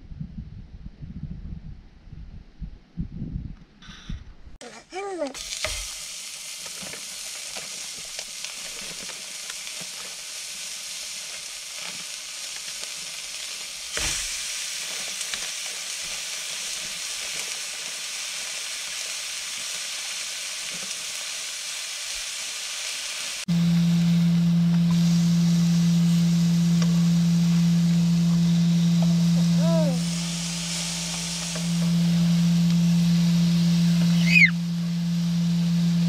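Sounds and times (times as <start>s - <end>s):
burger patties sizzling in pan: 5.4s - 36.0s
steady low tone: 23.5s - 36.0s.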